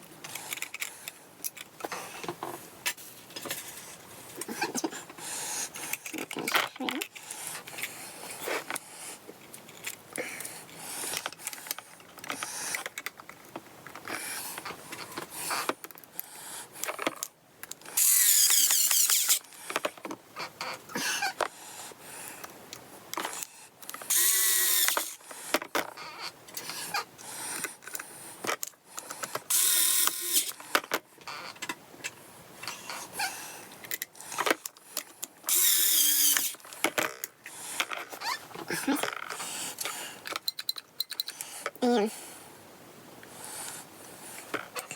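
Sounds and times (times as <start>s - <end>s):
electric screwdriver whirring: 18.0s - 19.4s, 24.1s - 25.2s, 29.5s - 30.5s, 35.5s - 36.6s
small clicks and handling knocks: 36.4s - 41.8s.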